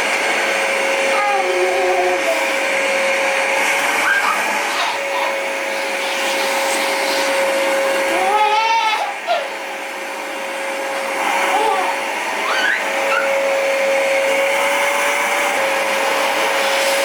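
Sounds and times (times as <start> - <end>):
vacuum cleaner whining: 0.0 - 17.0
baby vocalising: 1.1 - 2.5, 4.0 - 5.4, 8.1 - 9.6, 11.3 - 13.3.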